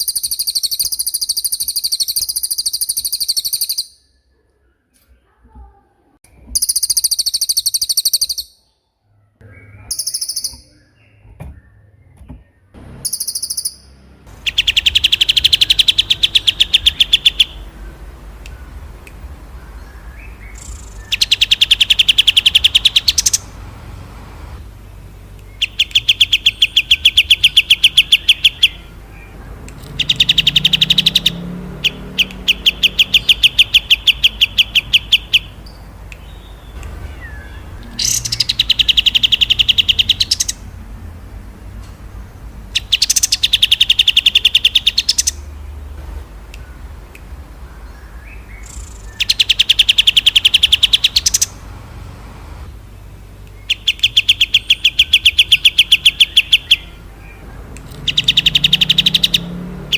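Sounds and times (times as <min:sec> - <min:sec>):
songbird rattling trill: 0:00.0 - 0:04.1, 0:06.5 - 0:08.6, 0:09.9 - 0:10.7, 0:13.0 - 0:24.0, 0:25.4 - 0:40.8, 0:42.7 - 0:45.8, 0:47.8 - 0:51.8, 0:53.6 - 0:57.0, 0:57.6 - 0:59.9
high bird chirps: 0:00.0 - 0:52.0, 0:52.7 - 0:59.9.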